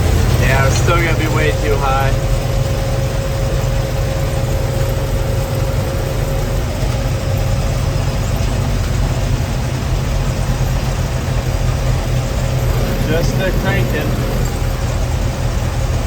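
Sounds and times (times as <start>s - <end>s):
combine engine drone: 0.0s - 16.0s
thin steady whine: 12.2s - 15.3s.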